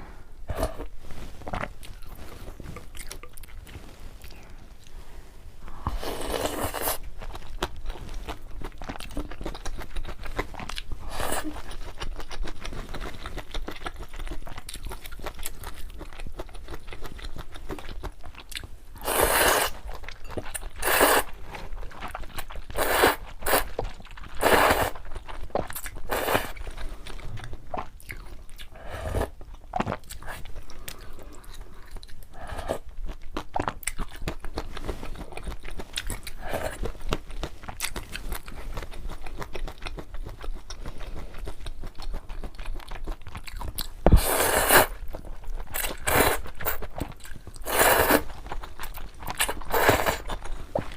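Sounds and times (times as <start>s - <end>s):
slurping noodles: 5.9s - 7.0s, 19.0s - 19.8s, 20.8s - 21.4s, 22.8s - 23.7s, 24.4s - 25.0s, 26.1s - 26.6s, 44.1s - 45.0s, 47.6s - 48.3s, 49.5s - 50.2s
wet chewing and biting: 33.0s - 44.3s.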